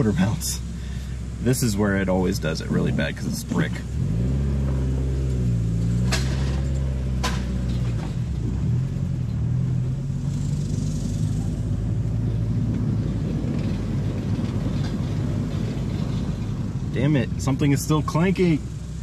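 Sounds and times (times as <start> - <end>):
car engine and road rumble: 0.0 - 19.0
sharp clanks from underneath: 5.9 - 8.3.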